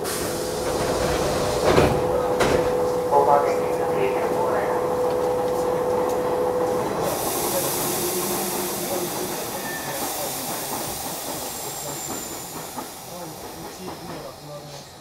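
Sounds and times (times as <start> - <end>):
train pulling out rumble: 0.0 - 15.0
compressed air hiss: 7.1 - 13.5.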